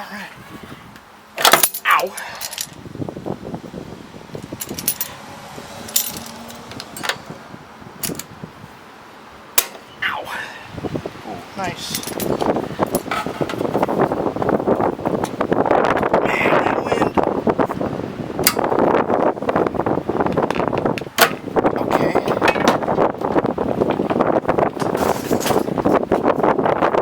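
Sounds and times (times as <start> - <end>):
wind buffeting microphone: 0.3 - 1.2, 2.4 - 27.0
light metal rattling: 4.3 - 5.2, 5.8 - 7.4, 11.8 - 14.0
metallic clinks on exhaust: 4.4 - 5.2.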